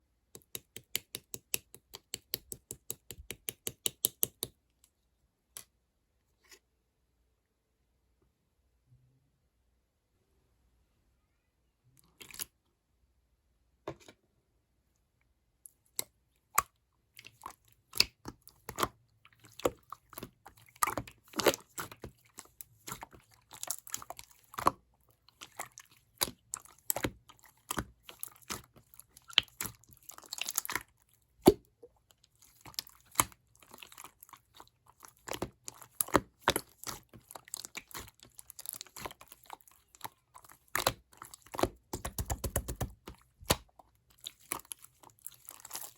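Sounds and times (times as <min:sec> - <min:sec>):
slime clicking and popping: 0:35.2 - 0:44.7.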